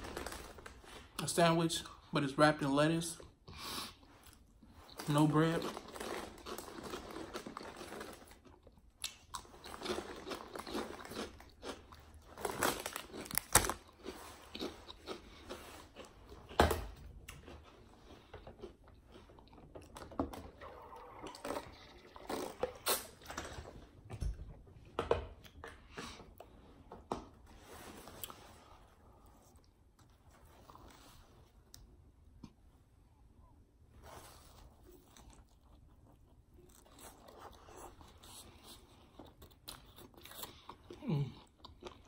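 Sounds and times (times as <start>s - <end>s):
chewing with wet mouth sounds: 6.3s - 16.6s, 34.8s - 42.0s.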